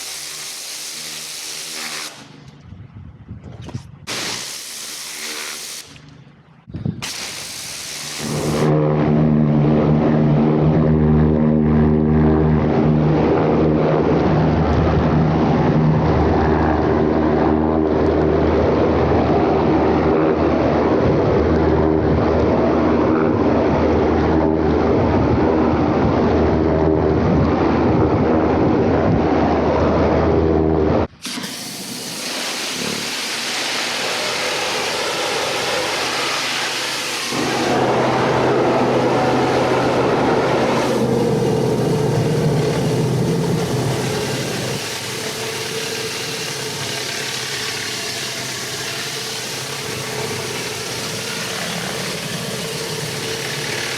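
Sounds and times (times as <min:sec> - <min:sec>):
high-pressure water spraying: 0:00.0 - 0:02.4, 0:04.1 - 0:06.0, 0:07.0 - 0:08.7, 0:31.2 - 0:53.9
pressure washer engine running: 0:00.0 - 0:02.4, 0:04.1 - 0:06.0, 0:07.0 - 0:18.4, 0:31.2 - 0:53.9.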